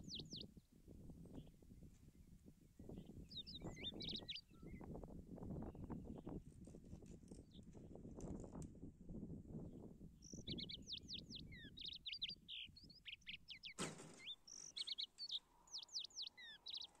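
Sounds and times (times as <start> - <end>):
songbird chirping: 0.0 - 0.7, 2.8 - 5.0, 10.2 - 17.0.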